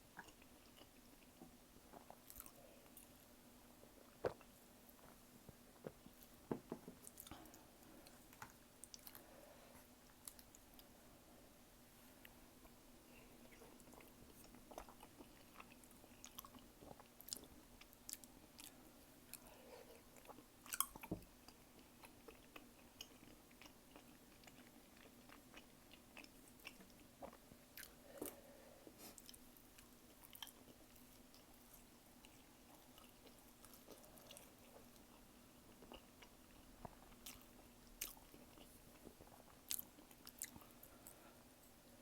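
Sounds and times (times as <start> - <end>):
close-miked chewing: 0.2 - 3.2, 7.1 - 9.3, 13.4 - 41.2.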